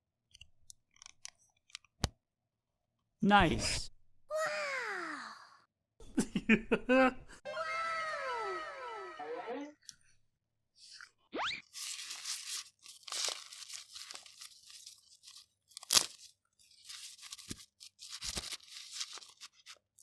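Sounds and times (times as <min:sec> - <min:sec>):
plastic packaging crinkling and tearing: 0:11.7 - 0:20.0.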